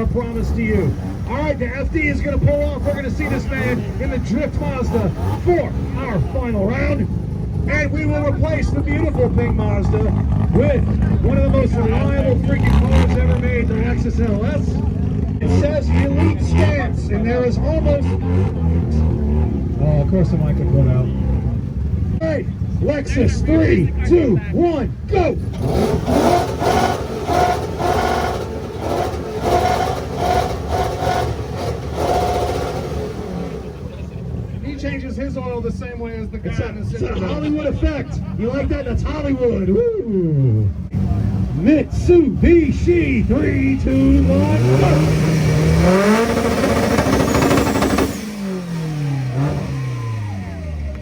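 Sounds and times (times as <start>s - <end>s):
car engine revving hard: 0.0s - 22.2s, 25.1s - 35.3s, 40.4s - 51.0s
car engine revving with crackling pops: 25.2s - 34.8s, 43.4s - 51.0s.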